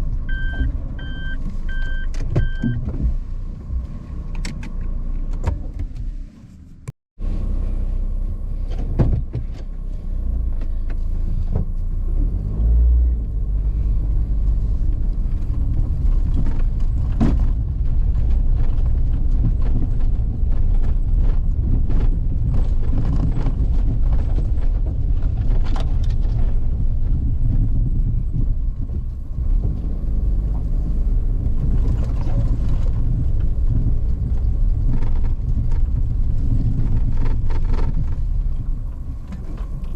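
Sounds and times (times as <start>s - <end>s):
car engine and road rumble: 0.0s - 39.9s
knocks and rattles: 14.7s - 39.9s.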